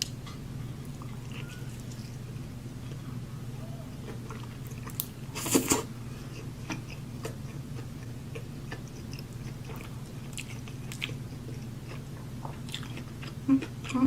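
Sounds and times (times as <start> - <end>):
steady low hum: 0.0 - 14.0
wet chewing clicks: 6.6 - 14.0.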